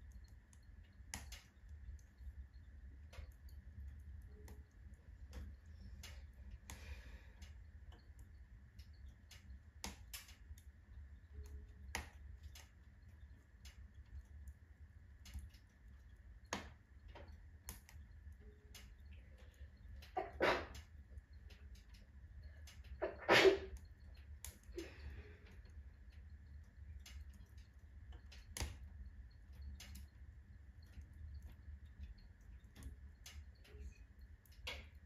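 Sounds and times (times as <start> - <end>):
fire pops and snaps: 0.0 - 19.1, 19.8 - 25.0, 26.1 - 30.2
low steady rumble: 0.0 - 35.0
wood fire crackling: 0.0 - 35.0.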